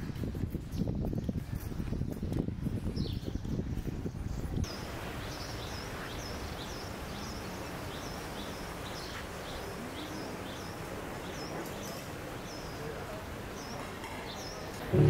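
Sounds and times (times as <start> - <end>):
outdoor background hiss: 4.6 - 15.0.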